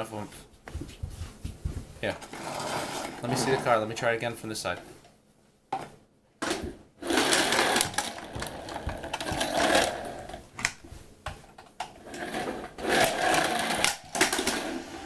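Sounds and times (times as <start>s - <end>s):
toy truck whirring rattle: 7.0s - 8.3s, 12.1s - 14.8s.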